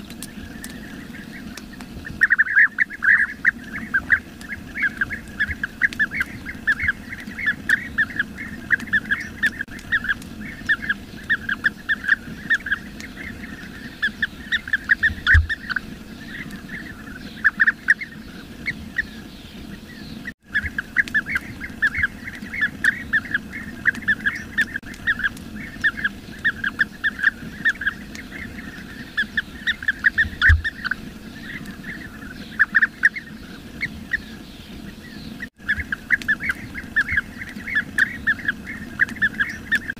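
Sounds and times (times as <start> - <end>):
birds chattering calls: 0.0 - 39.9.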